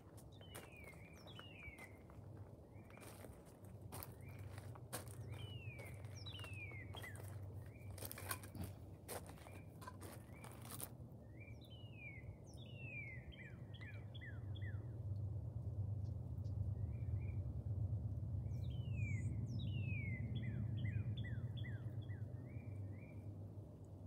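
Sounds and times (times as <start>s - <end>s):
steady low rumble: 0.0s - 10.8s, 14.4s - 24.0s
footsteps on gravel: 0.0s - 10.9s
birds whistling downward notes: 5.3s - 8.7s.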